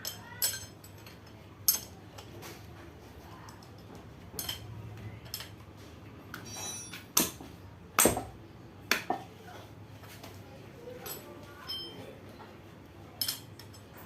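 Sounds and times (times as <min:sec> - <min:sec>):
metal tools clinking: 0:00.0 - 0:02.4, 0:03.4 - 0:05.6, 0:06.3 - 0:07.2, 0:11.0 - 0:12.1, 0:13.2 - 0:14.0
metallic ring: 0:06.4 - 0:07.1, 0:11.1 - 0:12.0.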